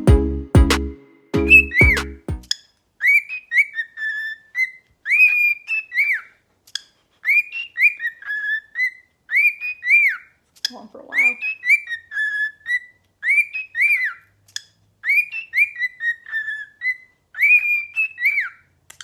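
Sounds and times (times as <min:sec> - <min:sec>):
song with a beat: 0:00.0 - 0:02.5.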